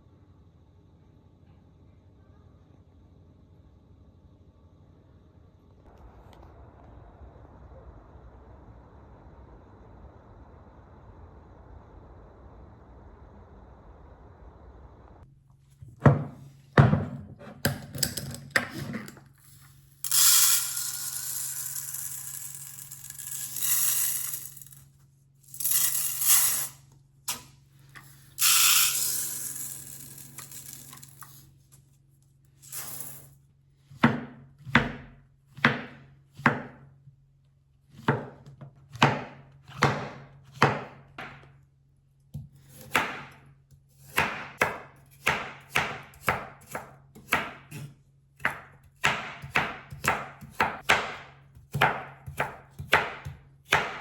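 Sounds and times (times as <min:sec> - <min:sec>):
knife chopping on cutting board: 0:33.9 - 0:36.8, 0:38.0 - 0:41.5, 0:42.3 - 0:43.4, 0:44.0 - 0:54.0.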